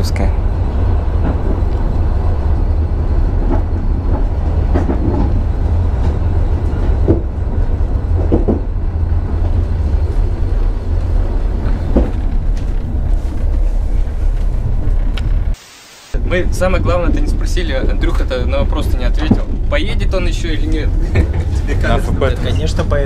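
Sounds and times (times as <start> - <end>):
train coach rumbling on track: 0.0 - 15.6, 16.2 - 23.0.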